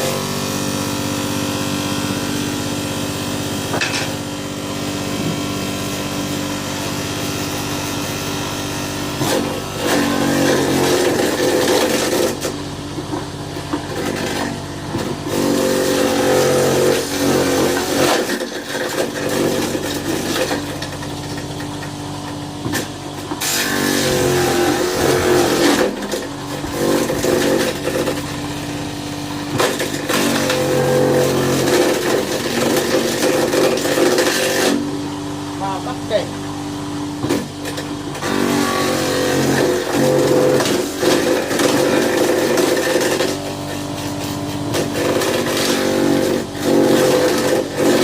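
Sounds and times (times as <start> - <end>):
small electric motor running: 13.8 - 21.9, 22.8 - 34.9, 37.4 - 48.0.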